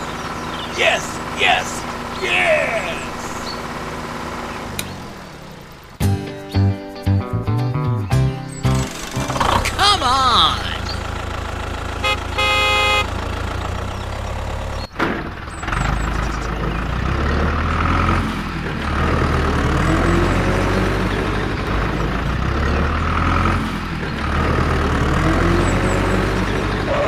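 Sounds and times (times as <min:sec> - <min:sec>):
vehicle engine running: 0:00.0 - 0:27.0
horn toot: 0:12.0 - 0:13.2.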